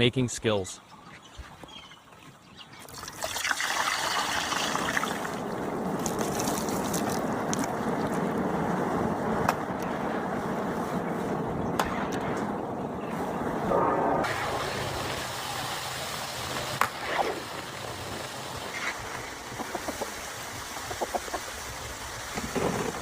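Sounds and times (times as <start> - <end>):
oil popping: 2.8 - 8.2.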